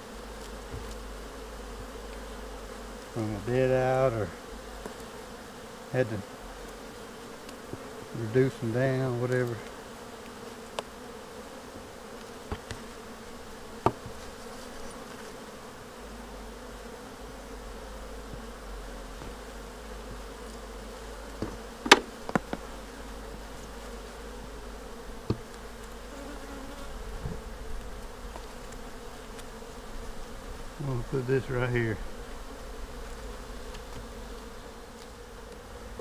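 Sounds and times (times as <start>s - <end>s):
honeybees buzzing: 0.0s - 36.0s
sharp knocks: 13.8s - 14.2s, 21.4s - 22.6s.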